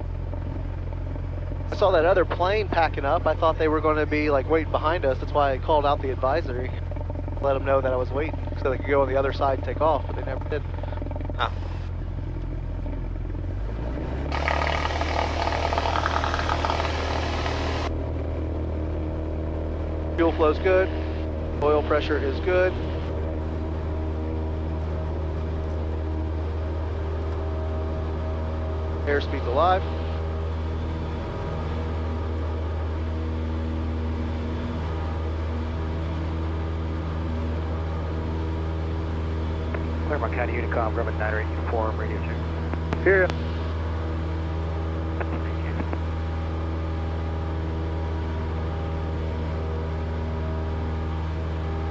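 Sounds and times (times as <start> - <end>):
airplane piston engine: 0.0 - 13.7, 14.3 - 18.0
propeller plane engine droning: 0.0 - 51.9.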